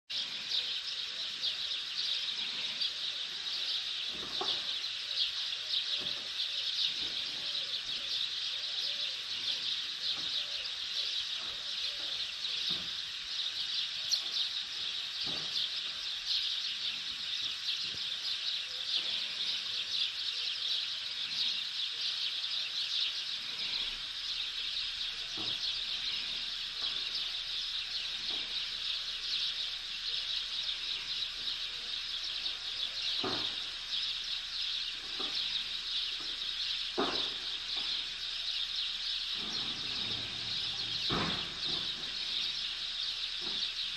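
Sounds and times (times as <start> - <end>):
small birds chirping: 0.1 - 43.9.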